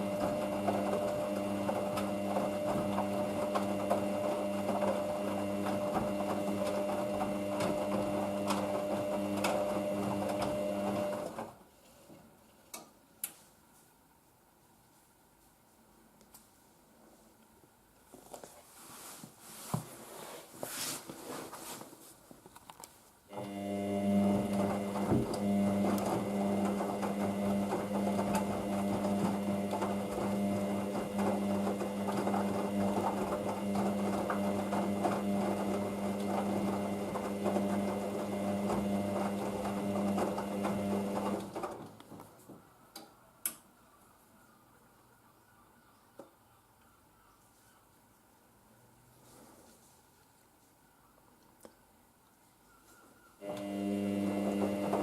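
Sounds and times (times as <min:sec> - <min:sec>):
washing machine humming and rattling: 0:00.0 - 0:11.6, 0:23.3 - 0:42.4, 0:53.4 - 0:55.0.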